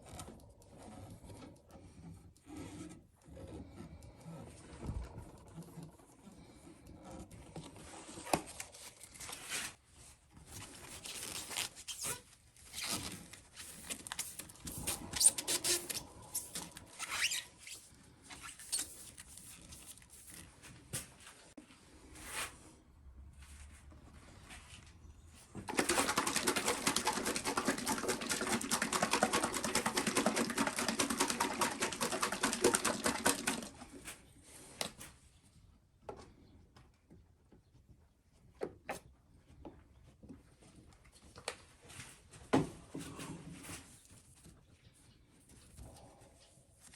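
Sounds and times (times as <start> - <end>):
rapid back-and-forth rubbing: 25.7 - 34.1.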